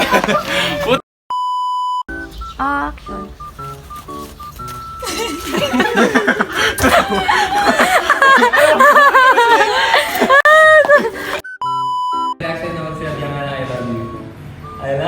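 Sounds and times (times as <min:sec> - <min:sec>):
people laughing hard: 0:00.0 - 0:01.0, 0:05.0 - 0:11.4.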